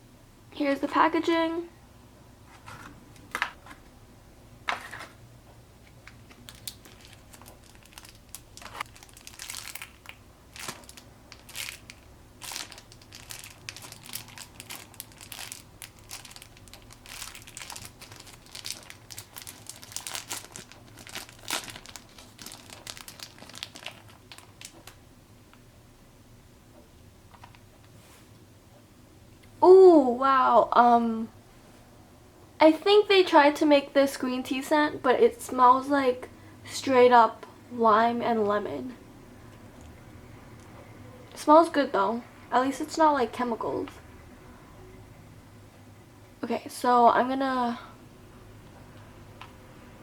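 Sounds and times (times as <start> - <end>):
toy packaging crinkling: 6.1 - 25.0.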